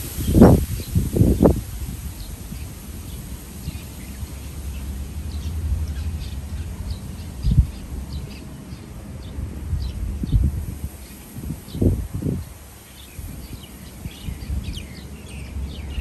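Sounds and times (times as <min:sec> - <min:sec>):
low rumble: 0:00.0 - 0:08.3
small birds chirping: 0:00.0 - 0:16.0.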